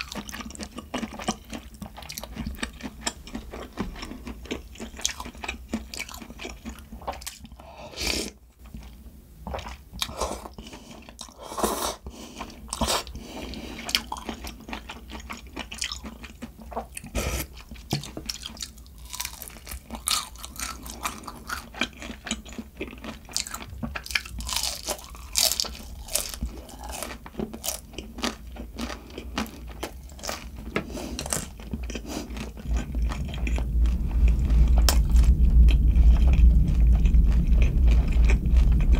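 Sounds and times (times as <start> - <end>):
person chewing crunchy food: 0.0 - 38.9.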